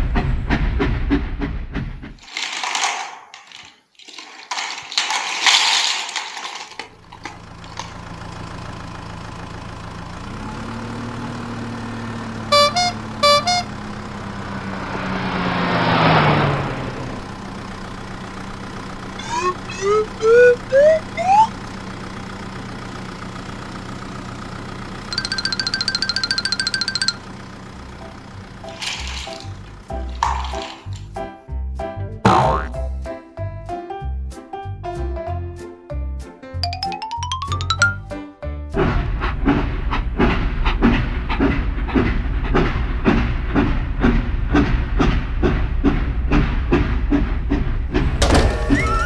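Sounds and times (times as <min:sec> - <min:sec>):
toy engine hum: 0:02.2 - 0:08.5, 0:12.4 - 0:14.4, 0:19.0 - 0:21.7, 0:25.1 - 0:27.4, 0:28.0 - 0:31.1
short horn beeps: 0:12.5 - 0:14.0, 0:25.2 - 0:27.2
rising springy glides: 0:19.1 - 0:21.6
whoosh with falling tone: 0:19.2 - 0:21.6.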